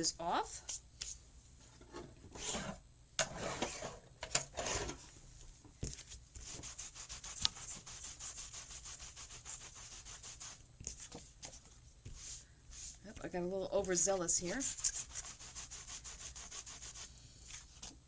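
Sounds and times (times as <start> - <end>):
rubbing strokes over cardstock: 6.0 - 13.0, 14.4 - 17.9.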